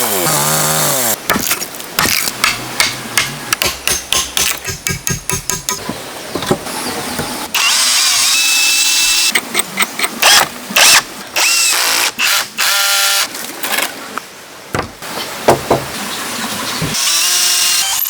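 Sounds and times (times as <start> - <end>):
sharp knocks: 14.7 - 15.9.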